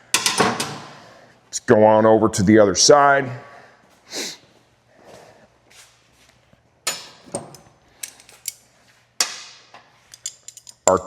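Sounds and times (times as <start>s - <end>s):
metallic clicks and knocks: 10.1s - 11.0s.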